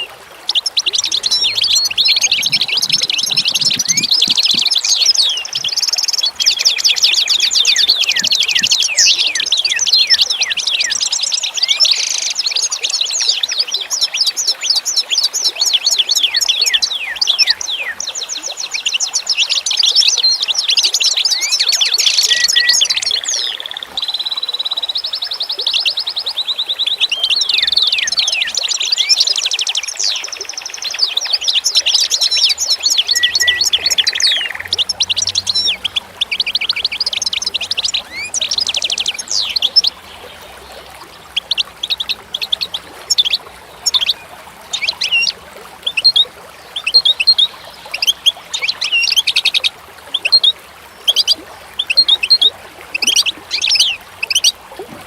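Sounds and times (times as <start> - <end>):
small birds chirping: 0.0 - 54.6.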